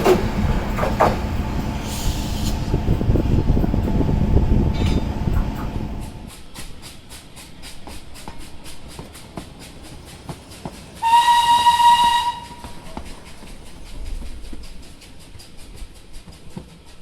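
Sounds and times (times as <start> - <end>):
train wheels clicking over rail joints: 0.0 - 17.0
high train whistle: 11.0 - 13.1.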